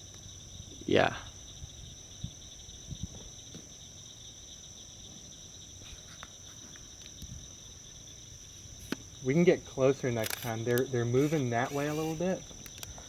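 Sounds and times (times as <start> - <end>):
faint clicks: 12.5 - 13.0.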